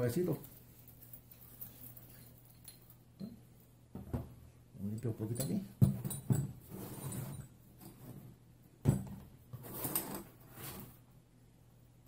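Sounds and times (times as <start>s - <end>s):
metal tools rubbing and shuffling: 0.0s - 3.1s, 5.3s - 8.2s.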